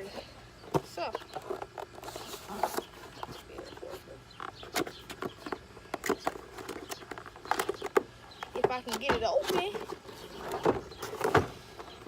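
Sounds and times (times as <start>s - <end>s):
small clicks and knocks of packaging: 4.3s - 12.0s.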